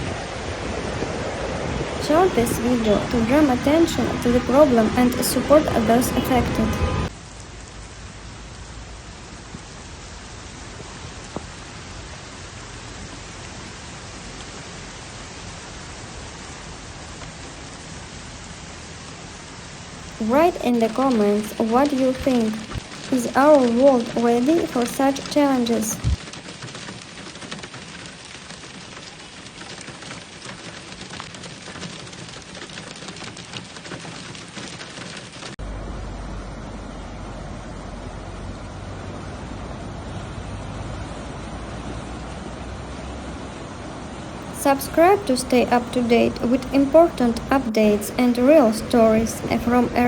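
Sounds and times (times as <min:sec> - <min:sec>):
heavy rain falling: 0:00.0 - 0:07.1, 0:09.2 - 0:35.6, 0:41.0 - 0:50.0
heavy downpour hissing: 0:00.0 - 0:35.3
floodwater running: 0:02.0 - 0:07.1, 0:20.0 - 0:26.2.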